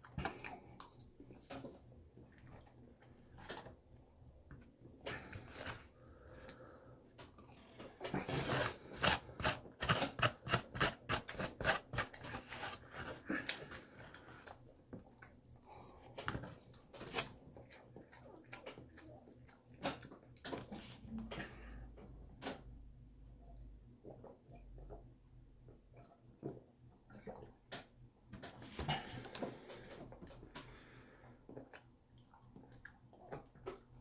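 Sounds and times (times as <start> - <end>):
chewing and eating: 0.0 - 21.9, 28.7 - 34.0.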